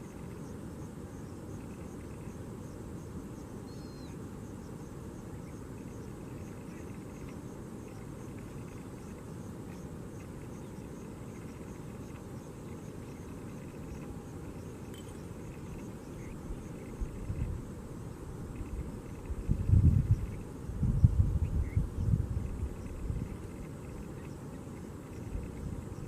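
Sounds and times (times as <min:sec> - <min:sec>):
bird chirp: 0:00.0 - 0:17.5, 0:18.5 - 0:26.0
insect chirps: 0:00.0 - 0:26.0
steady low rumble: 0:10.1 - 0:26.0.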